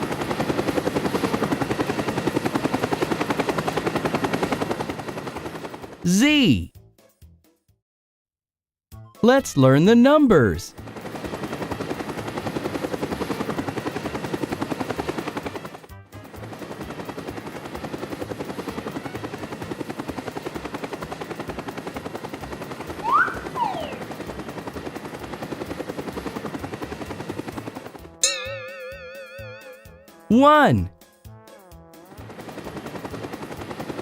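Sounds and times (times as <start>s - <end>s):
whistling glides: 22.9s - 24.2s.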